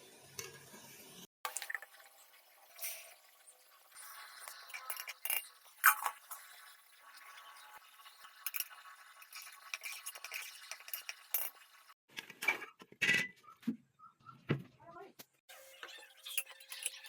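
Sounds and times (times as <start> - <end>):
metal utensils clinking on dishes: 15.8 - 17.0.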